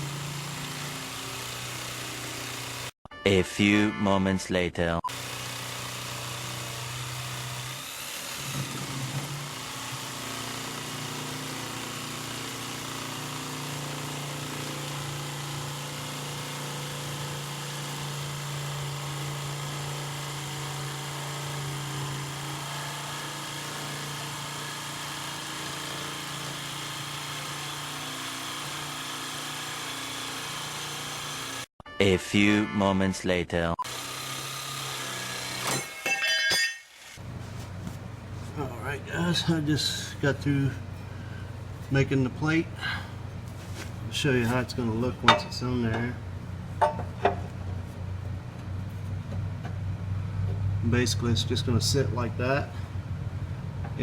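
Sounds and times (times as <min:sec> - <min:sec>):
power tool grinding steel: 0:00.0 - 0:03.0, 0:05.1 - 0:31.7, 0:33.8 - 0:37.2, 0:38.6 - 0:47.4.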